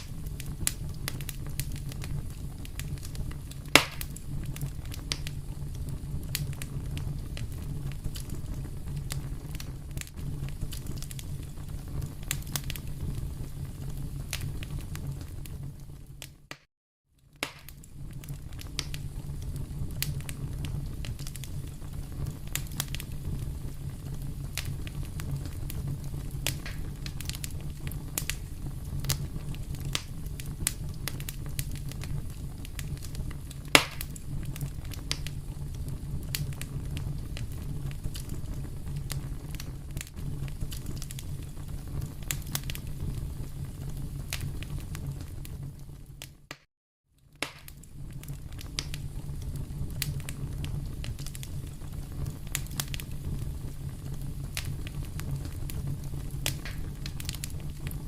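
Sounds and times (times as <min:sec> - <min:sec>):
fire popping: 0:00.0 - 0:58.0
wood fire crackling: 0:00.0 - 0:58.0
low rumble: 0:17.7 - 0:45.9.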